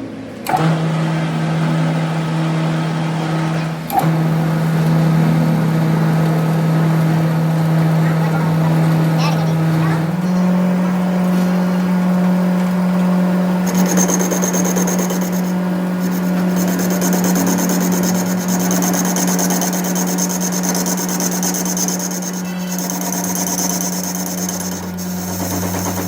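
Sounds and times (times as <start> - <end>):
workshop machine humming: 0.0 - 26.0
metal being rasped: 13.6 - 26.0.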